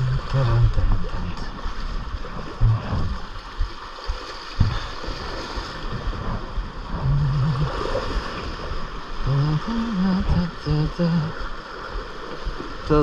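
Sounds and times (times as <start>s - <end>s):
low hum: 0.0s - 3.8s, 5.8s - 11.6s
water splashing against hull: 0.0s - 13.0s.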